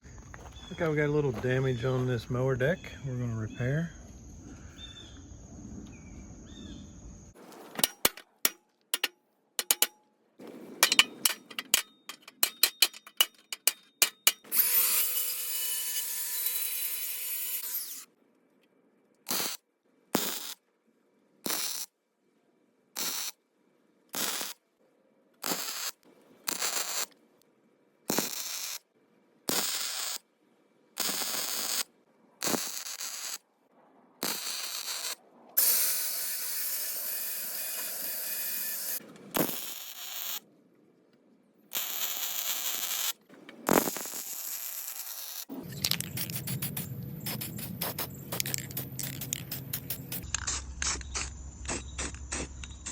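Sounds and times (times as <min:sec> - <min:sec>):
welder arc crackling: 0:41.7 - 0:52.9.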